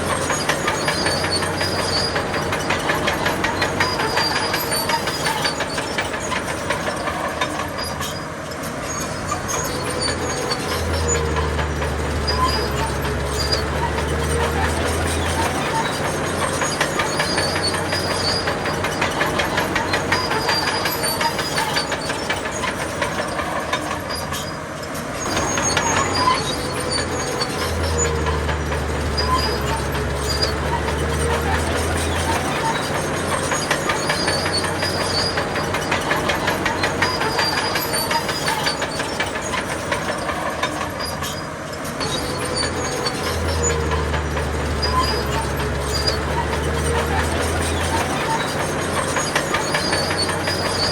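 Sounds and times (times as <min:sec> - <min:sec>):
diesel engine running: 0:00.0 - 0:50.9
steel tracks clanking: 0:00.0 - 0:50.9.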